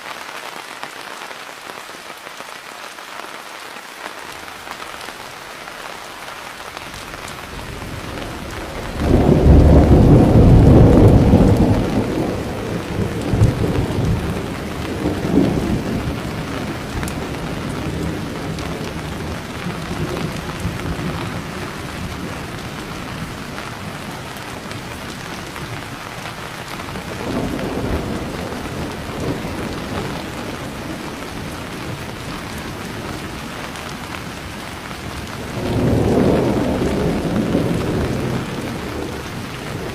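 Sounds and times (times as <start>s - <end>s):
steady rain falling: 0.0s - 39.9s
thunder rolling: 7.1s - 25.8s, 26.8s - 33.1s, 35.4s - 39.9s.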